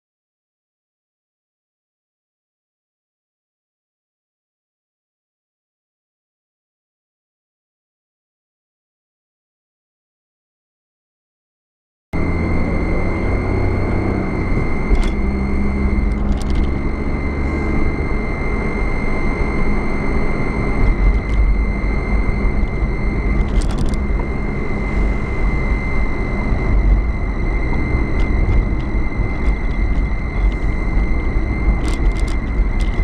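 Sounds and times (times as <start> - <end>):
car road and engine rumble: 12.2 - 33.0
thin high whine: 12.2 - 33.0.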